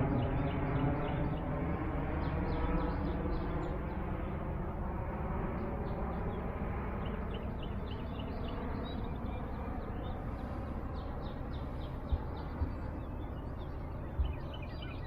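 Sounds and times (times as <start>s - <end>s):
birds chirping: 5.6s - 15.0s.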